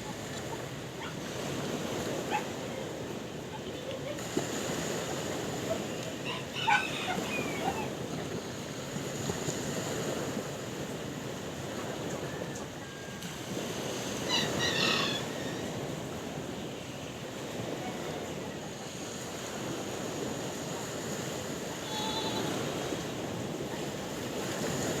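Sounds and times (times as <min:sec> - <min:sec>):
sea waves washing: 0:00.0 - 0:25.0
high-pitched animal call: 0:14.3 - 0:15.6, 0:21.8 - 0:22.7.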